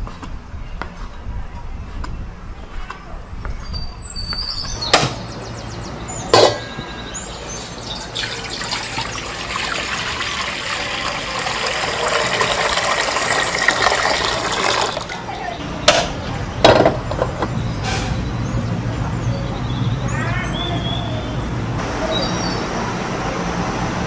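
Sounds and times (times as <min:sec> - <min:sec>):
liquid pouring into pan: 0:08.0 - 0:15.2.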